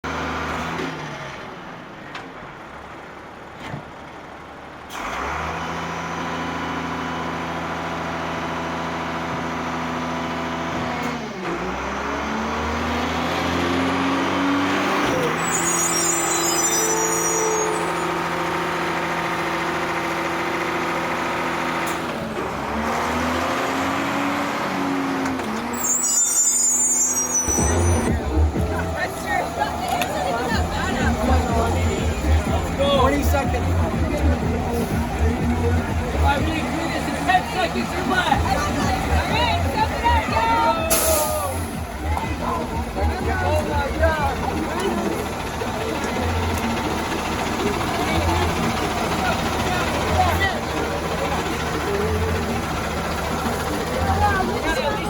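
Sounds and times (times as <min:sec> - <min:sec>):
vehicle engine running: 0:00.0 - 0:25.7, 0:27.5 - 0:55.0
brief high squeals: 0:15.1 - 0:18.2, 0:25.7 - 0:28.2.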